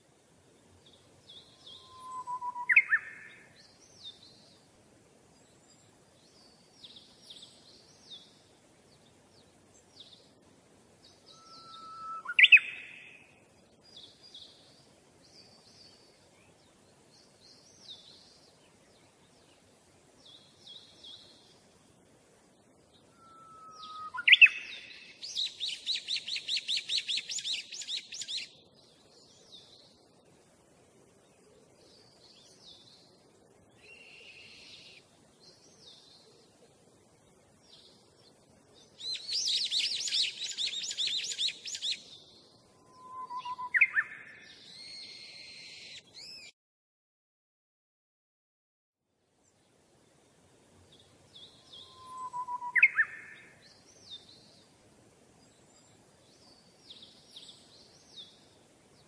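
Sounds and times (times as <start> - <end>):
bird rising call: 1.6 - 3.4, 11.3 - 13.2, 23.1 - 28.3, 42.8 - 46.5, 51.5 - 53.6
birds chirping: 22.9 - 30.1, 37.6 - 46.5, 50.8 - 54.8.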